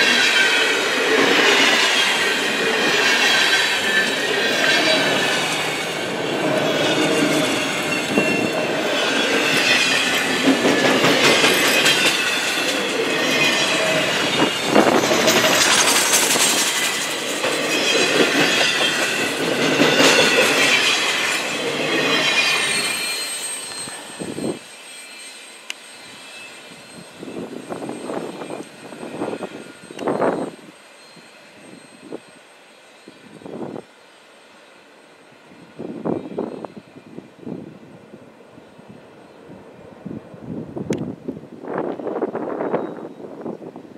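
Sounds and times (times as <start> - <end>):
freight train wheels clattering: 0.0 - 24.6
high wheel squeal: 0.0 - 37.5.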